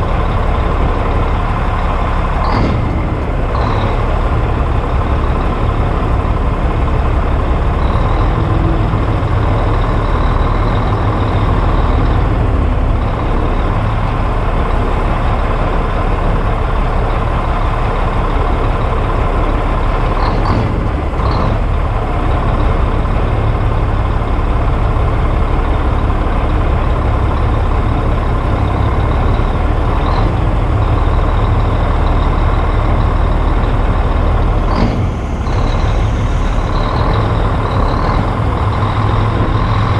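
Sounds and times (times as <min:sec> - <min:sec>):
diesel truck engine drone: 0:00.0 - 0:39.9.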